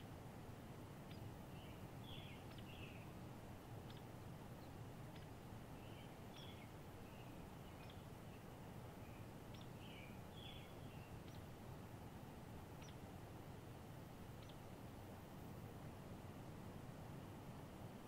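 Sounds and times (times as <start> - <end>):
low steady background hiss: 0.0 - 18.0
birds chirping: 1.1 - 3.2, 3.8 - 11.6.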